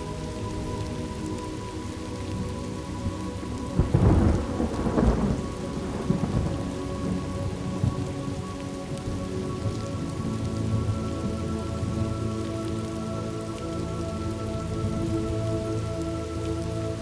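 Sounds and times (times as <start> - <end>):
steady rain: 0.0 - 17.0
thunder rumbling: 3.0 - 12.0.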